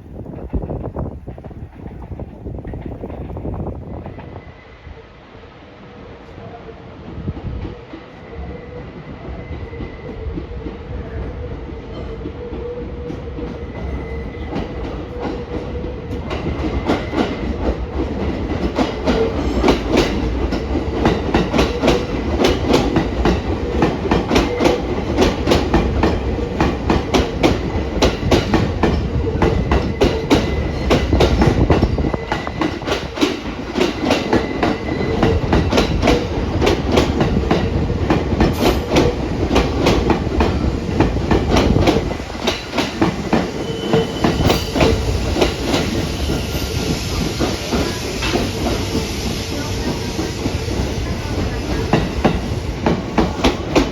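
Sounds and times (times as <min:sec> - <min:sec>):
train wheels clacking: 0:11.7 - 0:53.9.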